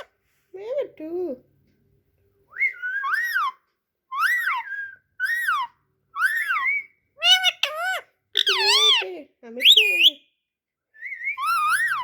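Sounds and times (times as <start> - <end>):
parrot whistle-like calls: 2.5 - 9.0, 11.0 - 12.0.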